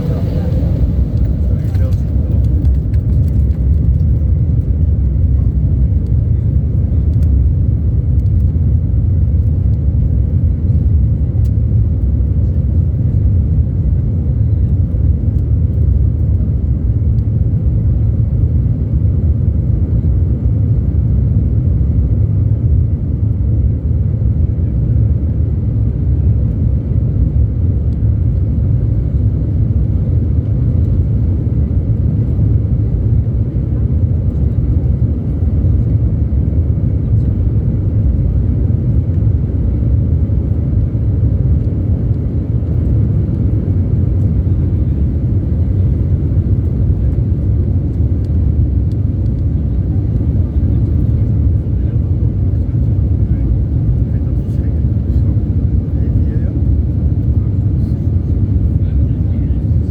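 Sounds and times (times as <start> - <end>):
landing gear rumbling on runway: 0.0 - 4.8
jet engines at takeoff thrust: 0.0 - 59.9.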